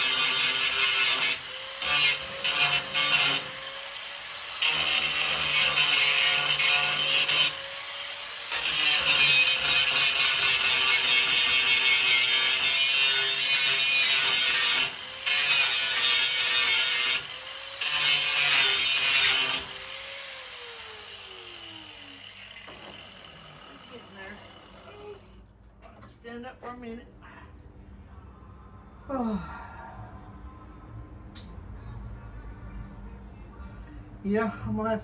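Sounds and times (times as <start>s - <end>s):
angle grinder grinding steel: 0.0s - 25.4s
grinder motor spinning down: 20.0s - 25.2s.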